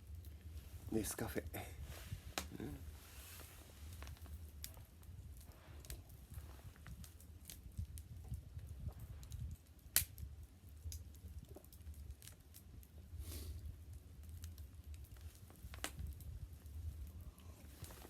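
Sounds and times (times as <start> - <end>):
bonfire crackling and popping: 0.0 - 18.0
wind on microphone: 1.7 - 3.5, 5.1 - 10.4.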